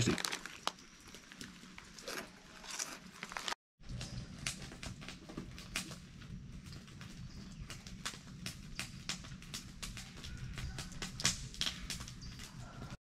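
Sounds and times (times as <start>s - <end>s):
crunching chewing: 0.0s - 3.6s
snack bag crinkling: 0.0s - 3.6s.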